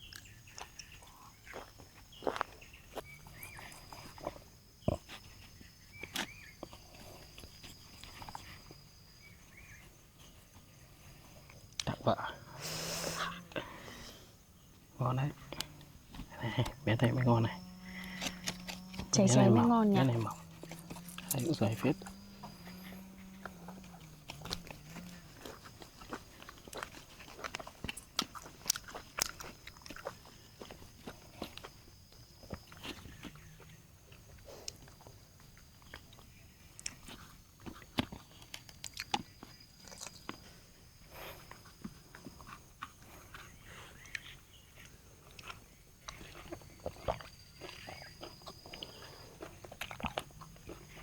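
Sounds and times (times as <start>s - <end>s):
insects droning: 0.0s - 51.0s
people chewing crunchy meat: 0.0s - 51.0s.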